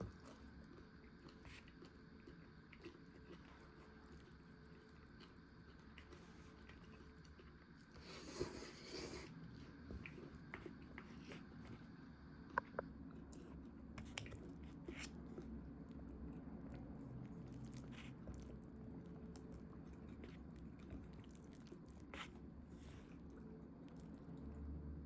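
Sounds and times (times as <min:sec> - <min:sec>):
person chewing and biting food: 0:00.0 - 0:11.9, 0:12.5 - 0:24.4.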